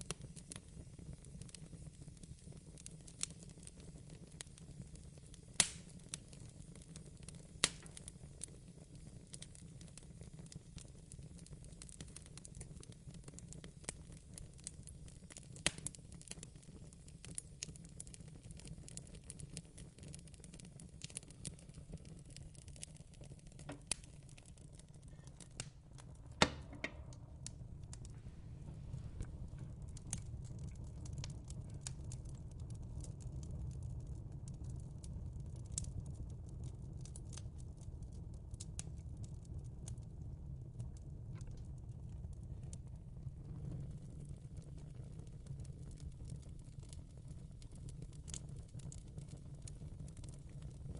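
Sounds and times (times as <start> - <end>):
low steady background noise: 0.0 - 50.9
wood fire crackling and popping: 0.0 - 50.9
low steady rumble: 23.0 - 47.8.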